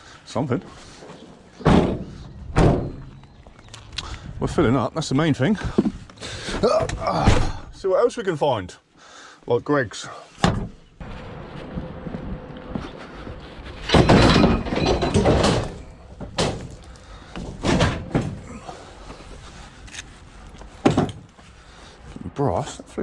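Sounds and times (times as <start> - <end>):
scrap thudding and banging: 10.5 - 19.2
scrap clattering: 13.3 - 18.4.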